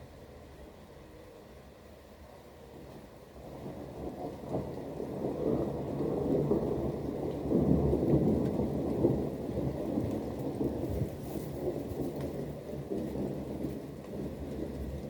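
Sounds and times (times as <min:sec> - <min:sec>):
steady rain: 0:00.0 - 0:15.0
rolling thunder: 0:03.4 - 0:15.0.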